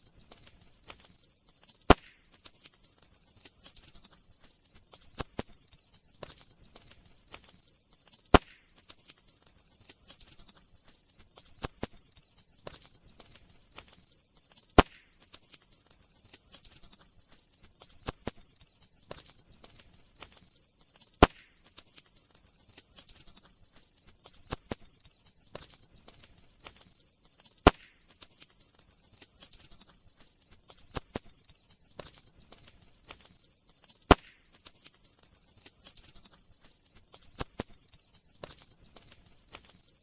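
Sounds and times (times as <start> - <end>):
faint hiss: 0.0 - 40.0
wood crackling in fire: 0.0 - 40.0
sharp loud pops: 1.9 - 2.3, 8.3 - 8.9, 14.8 - 15.2, 21.2 - 21.6, 27.6 - 28.1, 34.1 - 34.6.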